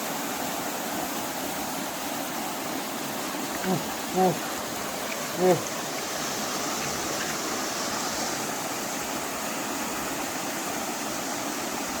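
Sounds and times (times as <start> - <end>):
stream rushing: 0.0 - 12.0.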